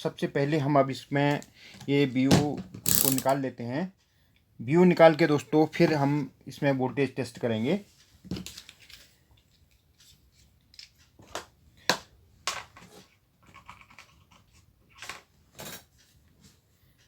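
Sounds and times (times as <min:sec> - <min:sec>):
small tools clicking and tapping: 0:02.8 - 0:03.4.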